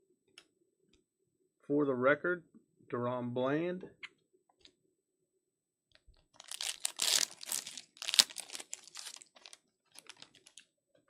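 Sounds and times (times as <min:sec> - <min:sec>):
wrapper tearing and crinkling: 0:06.4 - 0:10.6.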